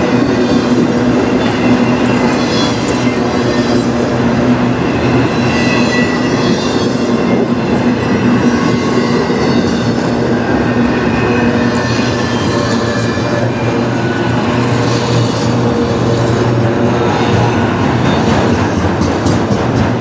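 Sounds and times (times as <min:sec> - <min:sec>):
freight train rumbling past: 0:00.0 - 0:20.0
high wheel squeal: 0:00.1 - 0:04.1, 0:04.7 - 0:10.6, 0:11.2 - 0:16.6.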